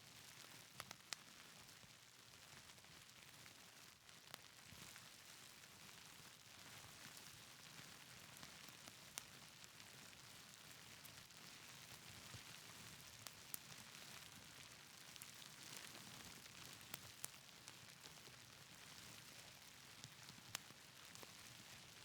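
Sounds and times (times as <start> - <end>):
wood fire crackling and popping: 15.0 - 18.3.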